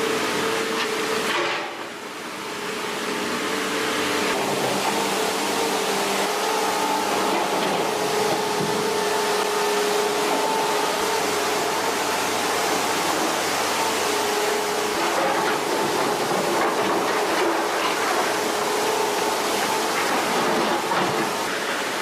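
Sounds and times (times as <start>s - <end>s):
machine motor humming: 4.0s - 17.2s.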